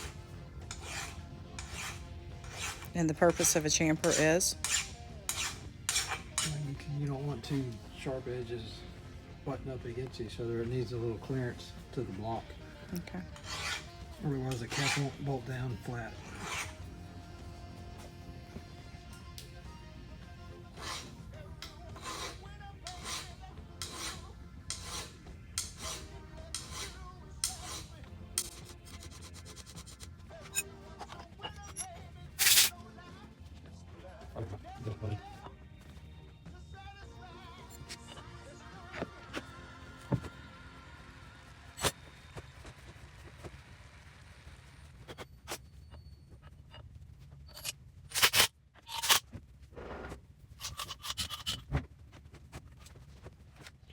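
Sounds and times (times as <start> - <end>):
metal parts clicking and scraping: 0.0 - 6.8, 20.8 - 32.7, 47.5 - 49.3, 50.6 - 51.7
hand file rasping on metal: 0.0 - 7.5, 13.3 - 16.9, 20.7 - 32.7, 50.6 - 51.6.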